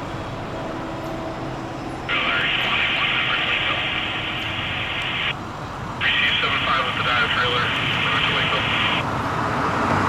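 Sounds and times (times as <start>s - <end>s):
truck engine running: 0.0s - 9.4s.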